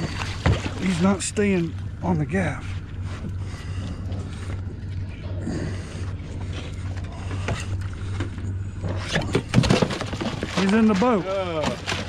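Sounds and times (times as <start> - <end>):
knocks and scrapes on hull: 0.0 - 1.2, 6.0 - 12.0
boat engine idling: 0.0 - 12.0.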